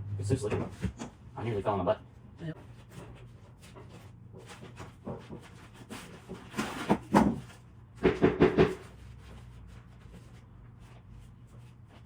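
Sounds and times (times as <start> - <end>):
sharp knocks and clatters: 4.4 - 9.0.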